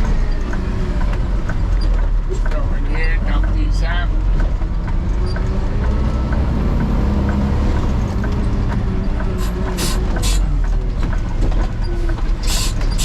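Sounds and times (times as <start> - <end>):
garbage truck rumble: 4.1 - 13.0
air hiss bursts: 9.4 - 10.4, 12.4 - 13.0.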